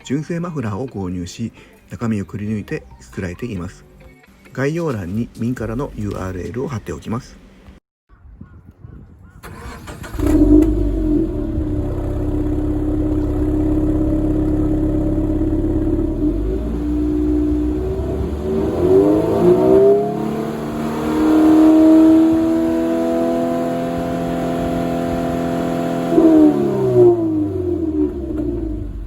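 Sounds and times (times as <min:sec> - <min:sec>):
car engine idling and revving: 0:09.8 - 0:29.0.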